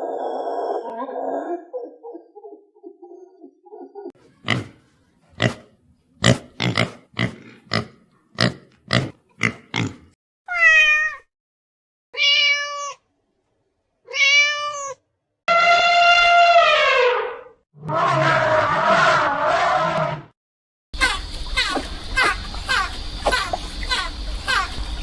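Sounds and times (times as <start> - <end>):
cat meowing: 10.5 - 11.3, 12.2 - 13.0, 14.1 - 15.0.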